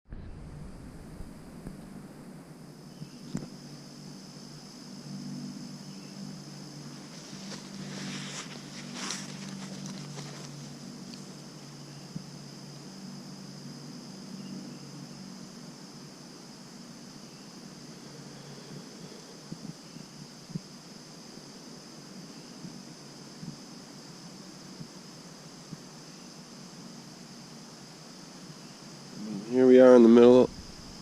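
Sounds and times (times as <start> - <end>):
low uneven hum: 0.1 - 31.0
insects trilling: 0.7 - 31.0
footsteps through forest brush: 6.9 - 11.4.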